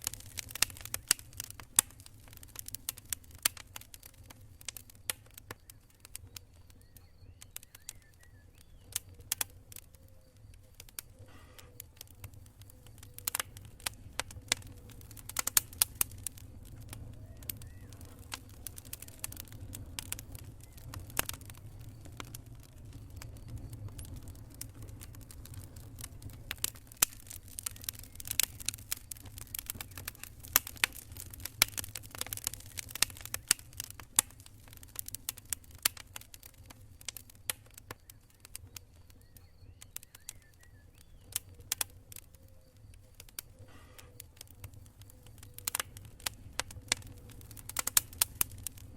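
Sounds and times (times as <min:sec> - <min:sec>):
campfire wood crackling and popping: 0:00.0 - 0:48.9
steady low rumble: 0:12.3 - 0:35.1.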